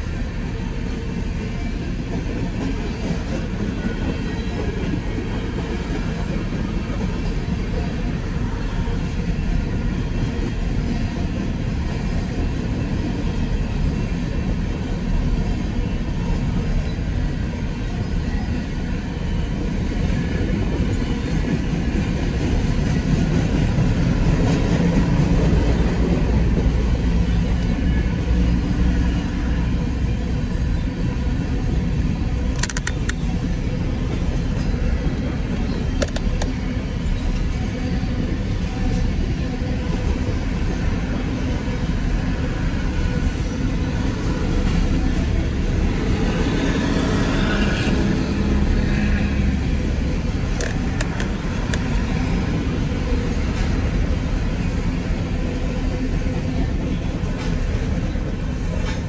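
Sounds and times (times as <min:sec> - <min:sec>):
sharp clicks: 0:32.5 - 0:33.3
train wheels clattering on rails: 0:50.4 - 0:54.2, 0:56.6 - 0:59.0.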